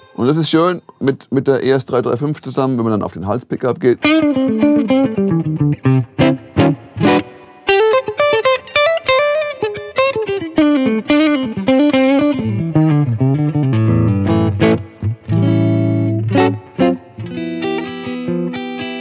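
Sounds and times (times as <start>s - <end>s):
electric guitar with reverb: 3.9s - 19.0s.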